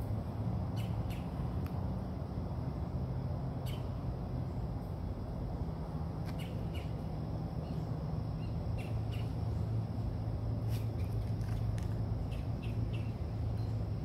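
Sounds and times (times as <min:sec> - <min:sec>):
steady low hum: 0:00.0 - 0:14.0
birds chirping: 0:06.3 - 0:07.0, 0:07.6 - 0:09.7, 0:12.2 - 0:13.9.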